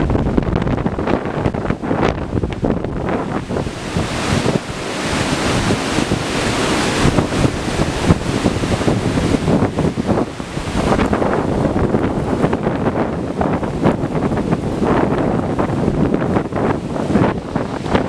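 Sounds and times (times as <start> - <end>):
strong wind buffeting microphone: 0.0 - 18.0.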